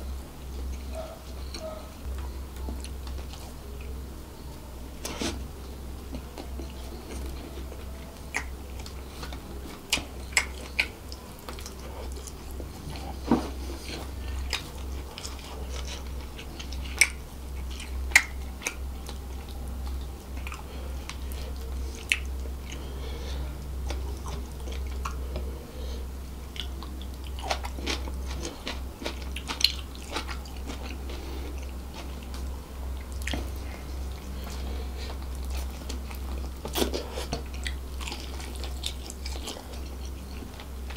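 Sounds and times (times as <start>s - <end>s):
steady low hum: 0.0s - 40.9s
person chewing and biting food: 6.1s - 23.0s, 26.5s - 40.9s.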